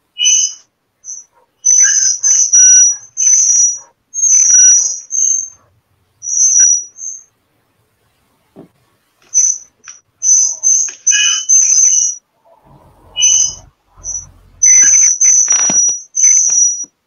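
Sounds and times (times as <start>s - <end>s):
small bird chirping and whistling: 0.2s - 5.6s, 6.2s - 7.3s, 9.3s - 12.2s, 12.8s - 17.0s.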